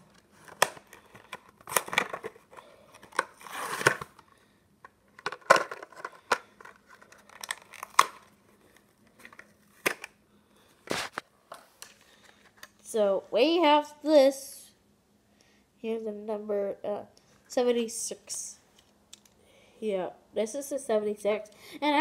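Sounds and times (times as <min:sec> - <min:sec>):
cardboard and plastic tearing: 0:00.3 - 0:04.2, 0:05.2 - 0:08.3.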